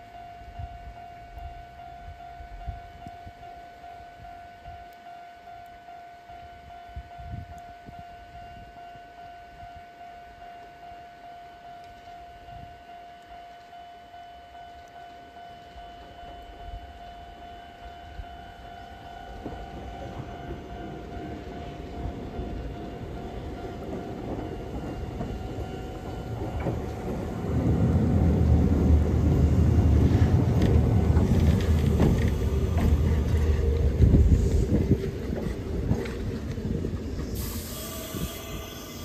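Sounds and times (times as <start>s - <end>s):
electric train rumble: 0.0s - 39.0s
wheels clacking over rail joints: 19.3s - 37.4s.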